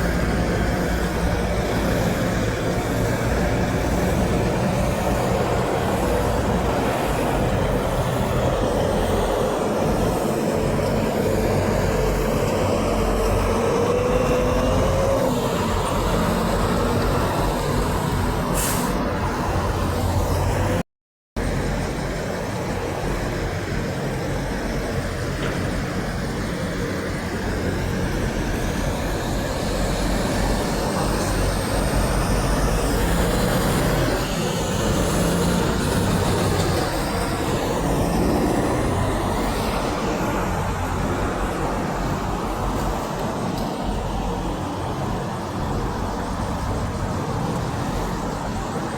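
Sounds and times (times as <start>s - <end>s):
trucks engine rumble: 0.0s - 20.8s, 21.4s - 48.9s.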